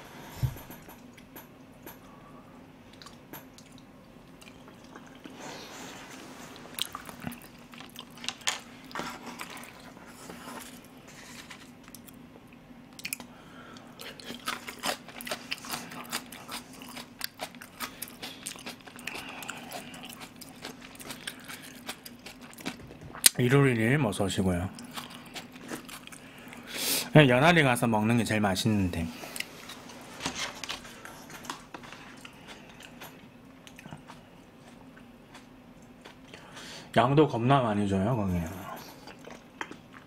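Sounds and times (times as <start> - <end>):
person chewing and crunching: 6.6 - 12.2, 12.9 - 23.4, 24.7 - 26.7, 29.3 - 36.6, 38.8 - 40.0.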